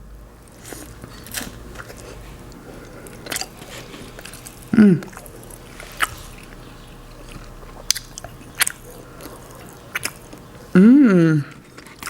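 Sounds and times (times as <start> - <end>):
soft wet chewing: 0.4 - 10.8, 11.4 - 12.0
mouth smacks: 4.2 - 11.6
person humming: 4.7 - 5.2, 10.7 - 11.6.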